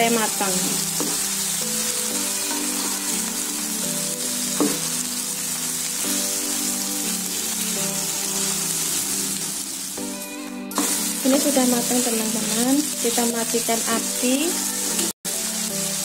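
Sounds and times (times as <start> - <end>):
food sizzling in a wok: 0.0 - 16.0
spatula stirring and knocking: 0.9 - 1.3, 4.5 - 5.0.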